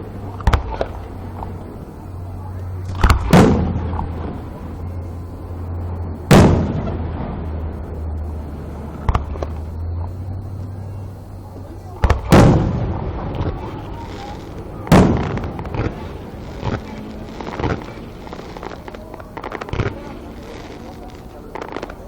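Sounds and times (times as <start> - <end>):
fireworks bangs: 0.0 - 22.0
low hum: 0.0 - 22.0
small firework pops: 0.3 - 1.8, 2.6 - 4.8, 9.0 - 10.7, 11.5 - 22.0.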